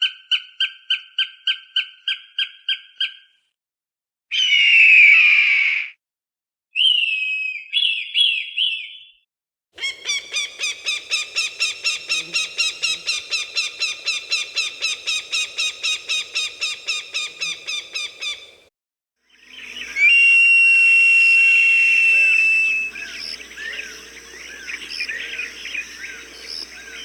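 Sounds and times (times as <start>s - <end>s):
rapid repeated falcon calls: 9.8s - 18.7s
falcon screeching: 19.8s - 27.0s.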